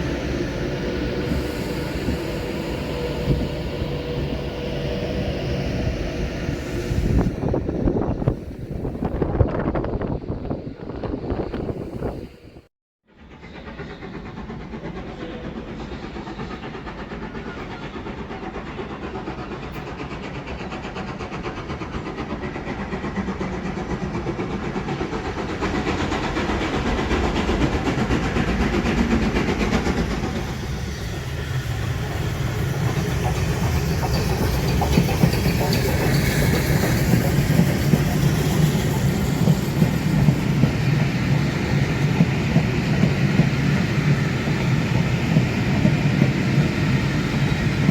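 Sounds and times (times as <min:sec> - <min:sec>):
train running on rails: 0:00.0 - 0:47.9.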